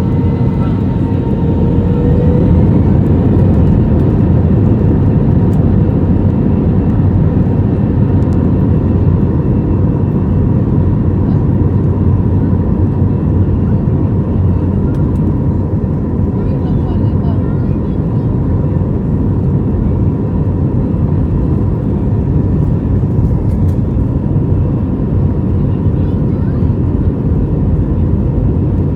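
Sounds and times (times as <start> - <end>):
constant hum: 0.0 - 28.9
jet engine and airflow rush: 0.0 - 28.9.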